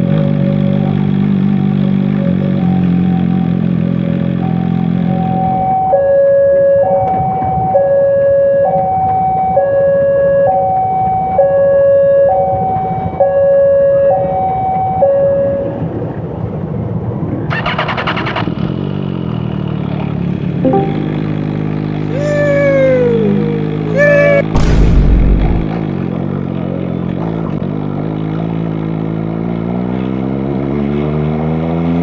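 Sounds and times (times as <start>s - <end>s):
road and engine noise: 0.0s - 32.0s
two-tone emergency siren: 5.0s - 15.9s, 20.6s - 21.3s.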